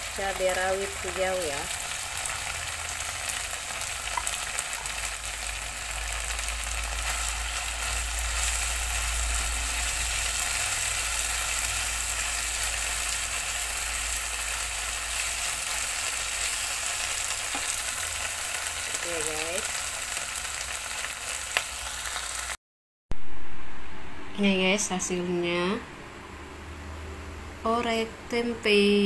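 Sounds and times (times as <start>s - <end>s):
food sizzling in a wok: 0.0s - 22.6s
low rumble: 23.1s - 27.7s.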